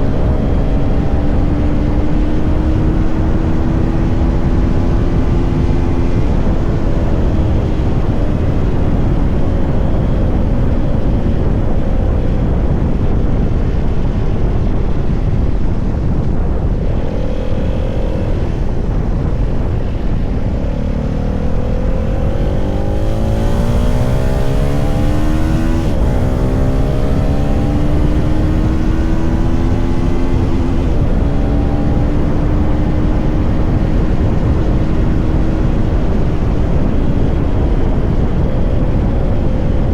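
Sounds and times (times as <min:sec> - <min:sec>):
motorcycle engine accelerating: 0:00.0 - 0:39.9
wind rumble: 0:00.0 - 0:39.9.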